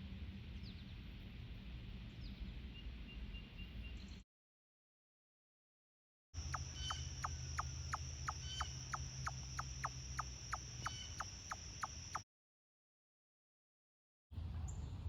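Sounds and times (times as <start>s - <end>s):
chipmunk chip calls: 6.4s - 12.2s
high-pitched whine: 6.4s - 12.2s.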